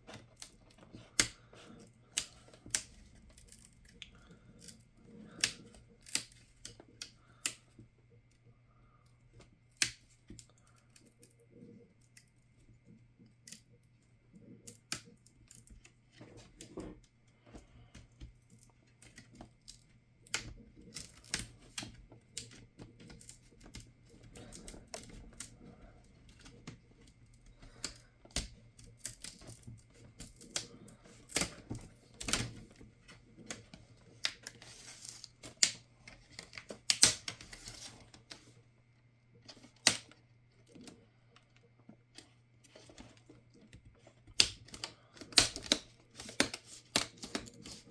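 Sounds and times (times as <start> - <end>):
tools and plastic parts clicking: 39.4 - 47.9.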